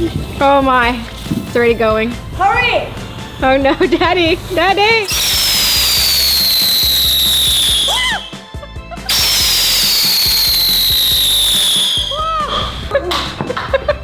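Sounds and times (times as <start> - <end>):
fireworks whistling: 2.9 - 13.0.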